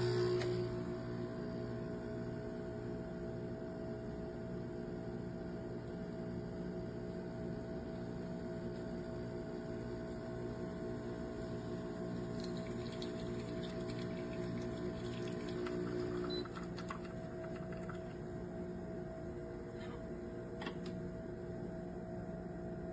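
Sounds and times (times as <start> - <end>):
espresso machine pump buzzing: 0.0 - 1.6, 7.0 - 21.1.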